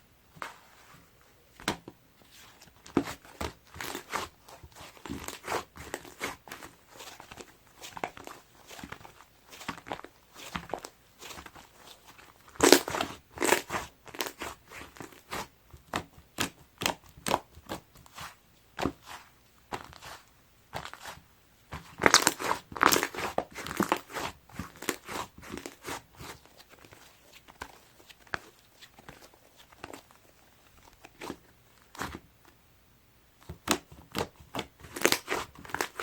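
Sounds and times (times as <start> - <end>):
slime squeezed by hand crackling: 21.8 - 30.0.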